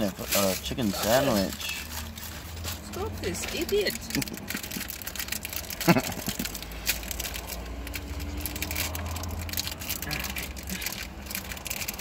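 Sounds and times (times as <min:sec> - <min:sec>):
person chewing crunchy food: 0:04.0 - 0:12.0.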